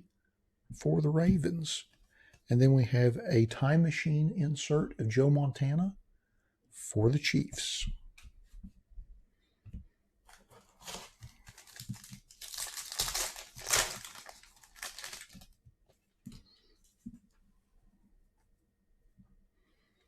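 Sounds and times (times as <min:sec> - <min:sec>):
wrapper tearing and crinkling: 0:10.3 - 0:15.6.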